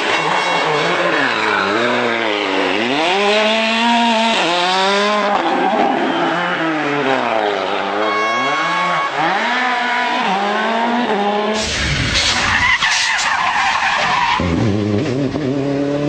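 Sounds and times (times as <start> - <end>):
rally car engine revving: 0.0 - 16.0
rushing noise: 11.6 - 14.5.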